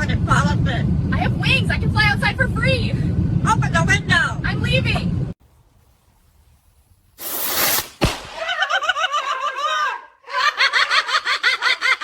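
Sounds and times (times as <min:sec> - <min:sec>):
sharp thud: 0:07.6 - 0:08.4.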